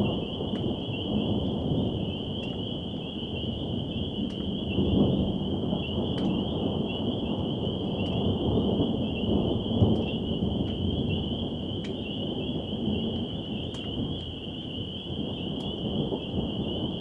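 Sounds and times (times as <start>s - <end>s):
thunder rumbling: 0.0s - 17.0s
sharp ticks: 2.4s - 2.7s, 4.2s - 4.7s, 6.1s - 6.5s, 8.0s - 8.4s, 9.9s - 10.8s, 13.1s - 14.4s.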